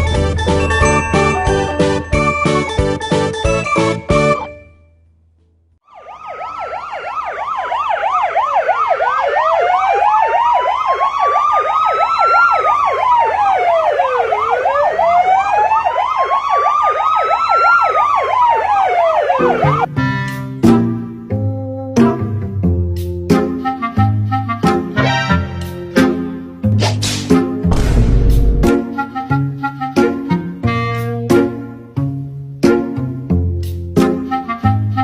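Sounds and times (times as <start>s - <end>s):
police siren wailing and yelping: 5.8s - 19.9s.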